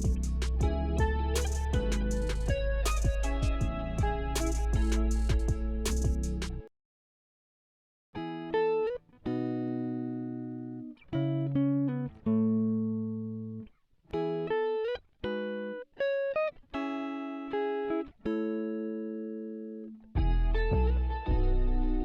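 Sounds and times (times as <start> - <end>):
plucked guitar music: 0.0 - 6.6, 8.2 - 22.0.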